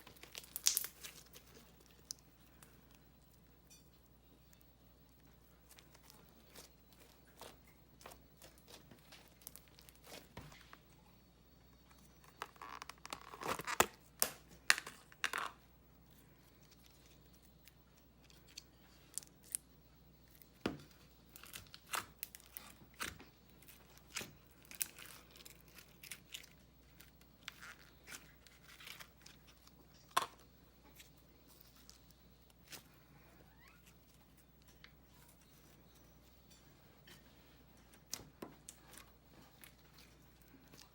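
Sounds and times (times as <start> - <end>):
slime popping and crackling: 0.0 - 2.2
slime squishing: 0.0 - 2.7, 5.2 - 10.7.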